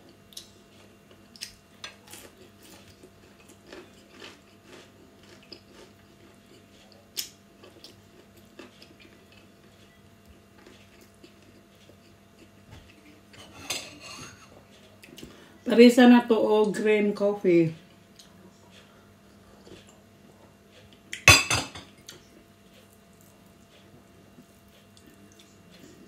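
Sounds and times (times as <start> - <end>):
person chewing raw vegetables: 0.0 - 13.2.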